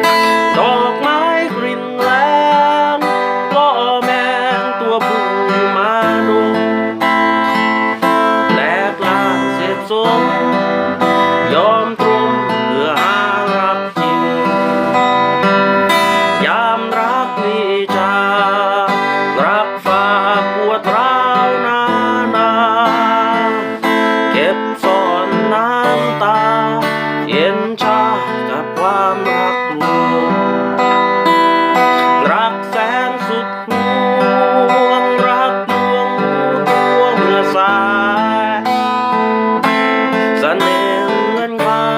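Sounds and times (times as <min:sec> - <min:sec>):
acoustic guitar strummed and picked: 0:00.0 - 0:41.9
wavering melody line: 0:07.0 - 0:17.2.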